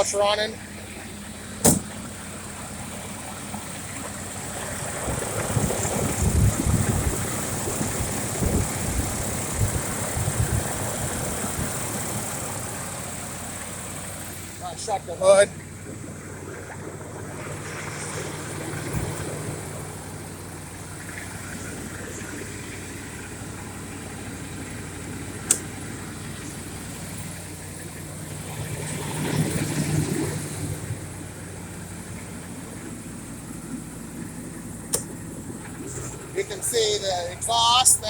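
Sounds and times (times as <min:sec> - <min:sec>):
truck engine idling: 0:00.0 - 0:38.0
sharp click: 0:01.6 - 0:01.9, 0:25.5 - 0:25.7, 0:34.9 - 0:35.1
thump: 0:01.6 - 0:02.0.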